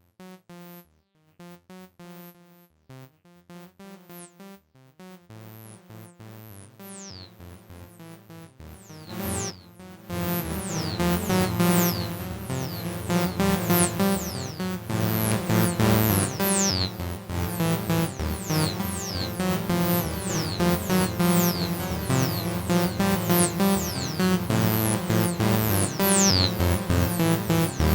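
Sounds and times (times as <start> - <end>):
electronic synth music: 8.7 - 27.9.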